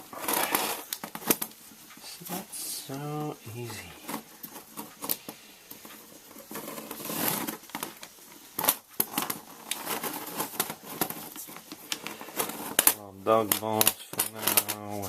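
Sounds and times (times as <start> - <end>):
scraping rasp: 0.0 - 1.3, 6.3 - 7.9
plastic parts clicking and scraping: 0.0 - 15.0.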